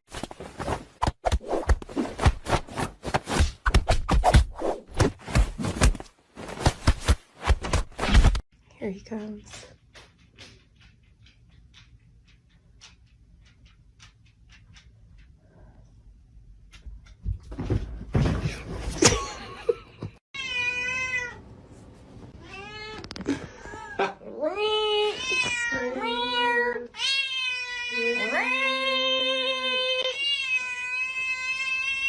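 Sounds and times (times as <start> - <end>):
rustling and knocking: 16.6 - 19.2.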